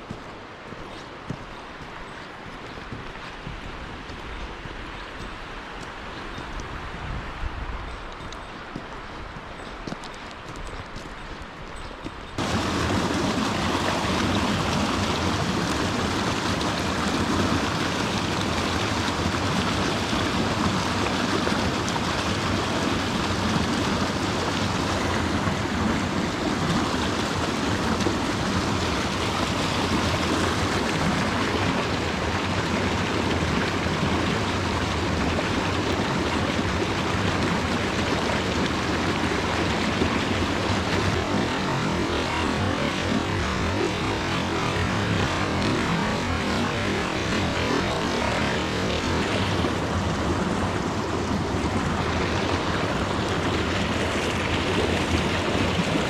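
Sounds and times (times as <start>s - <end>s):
stream water rushing: 12.4s - 56.0s.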